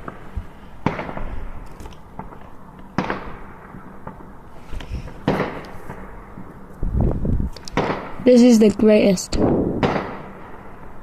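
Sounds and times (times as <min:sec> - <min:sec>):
fireworks bangs: 0:00.0 - 0:04.4, 0:05.0 - 0:06.6, 0:07.6 - 0:08.6, 0:09.4 - 0:11.0
fireworks pops and crackles: 0:00.0 - 0:06.8, 0:07.4 - 0:08.2, 0:09.8 - 0:10.4.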